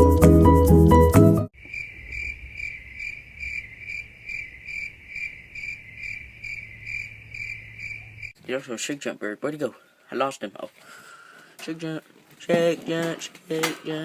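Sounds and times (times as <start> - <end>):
music: 0.0 - 1.5
cricket chirping: 1.6 - 8.4.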